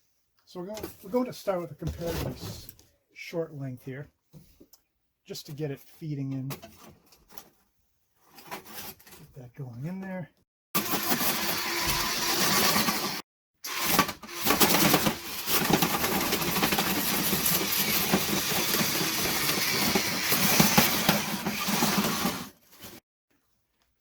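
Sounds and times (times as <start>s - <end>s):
power drill running: 10.8s - 22.6s.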